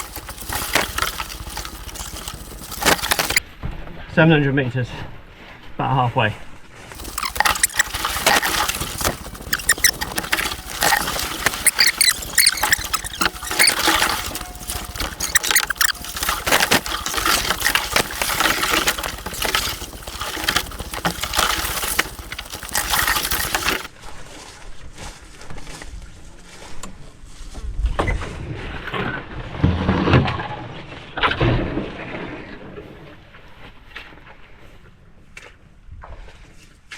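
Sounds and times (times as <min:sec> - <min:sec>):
footsteps through brush: 0:00.0 - 0:03.4, 0:06.7 - 0:27.6
leaves and branches rustling: 0:00.0 - 0:03.4, 0:06.7 - 0:27.6.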